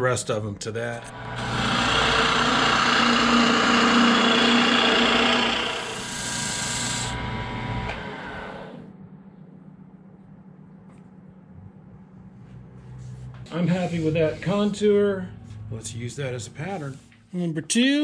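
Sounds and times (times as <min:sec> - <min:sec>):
turning tool cutting wood: 0:01.0 - 0:08.8
wood lathe motor hum: 0:01.0 - 0:08.8.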